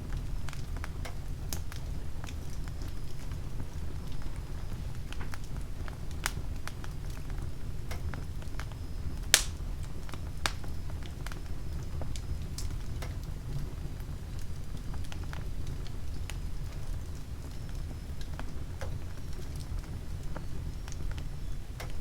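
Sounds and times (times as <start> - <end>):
fire crackling and snapping: 0.0 - 22.0
fire flames rumbling: 0.0 - 22.0
loud pop from fire: 9.3 - 9.7.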